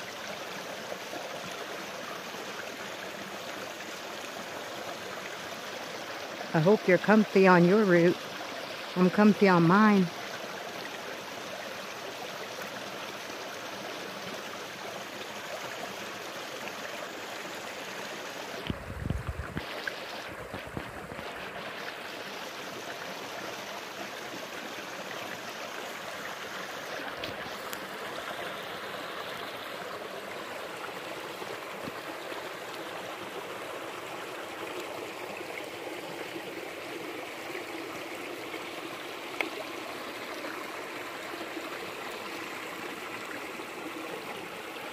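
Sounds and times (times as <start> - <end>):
stream rushing: 0.0 - 44.9
dull low bumps: 18.7 - 19.6.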